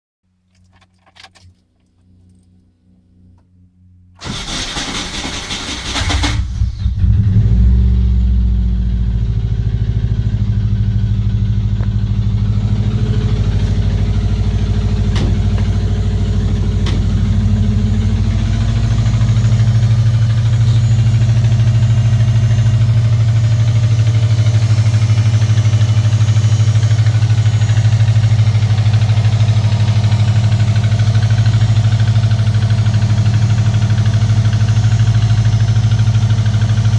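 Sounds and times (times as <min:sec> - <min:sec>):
starter cranking engine: 0:04.2 - 0:07.0
engine idling with knock: 0:08.0 - 0:36.9.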